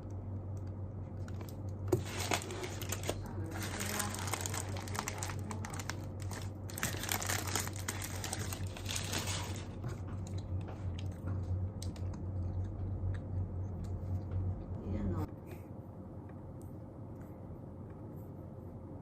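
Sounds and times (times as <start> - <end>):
steady low hum: 0.0 - 19.0
crinkling and rustling: 1.2 - 12.2.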